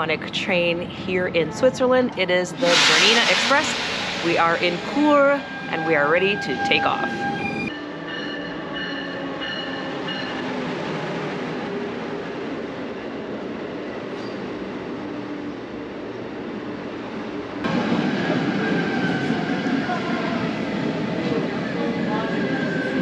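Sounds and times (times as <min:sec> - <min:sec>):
train wheels rumbling on rails: 0:00.0 - 0:07.8.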